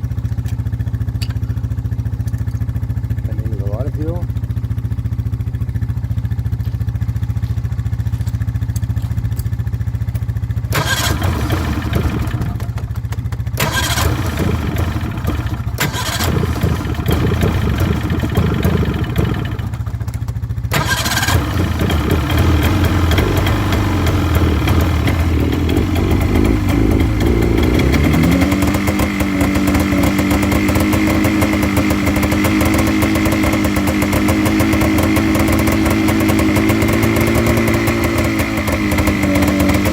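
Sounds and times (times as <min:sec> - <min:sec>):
snowmobile engine revving: 0:10.8 - 0:12.5, 0:13.6 - 0:19.8, 0:20.7 - 0:39.9.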